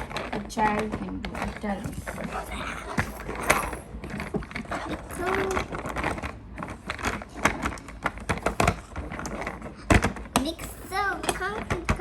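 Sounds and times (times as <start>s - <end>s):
plastic toy parts clicking: 2.8s - 12.0s.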